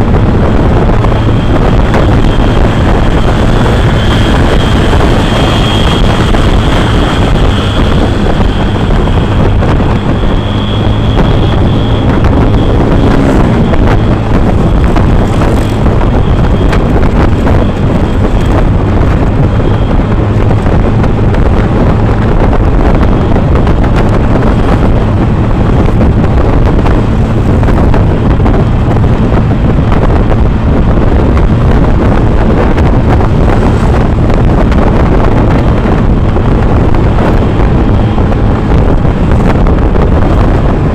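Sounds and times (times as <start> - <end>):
low engine hum: 0.0 - 40.9
wind buffeting microphone: 0.0 - 40.9.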